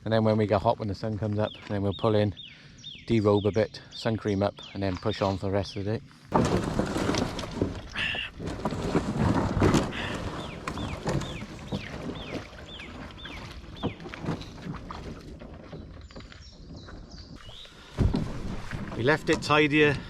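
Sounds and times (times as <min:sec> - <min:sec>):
paddling water: 0:04.7 - 0:20.0.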